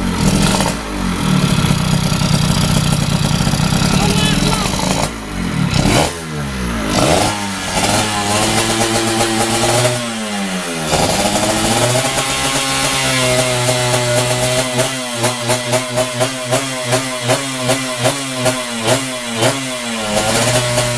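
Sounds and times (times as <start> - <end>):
motorcycle engine revving: 0.0 - 20.9.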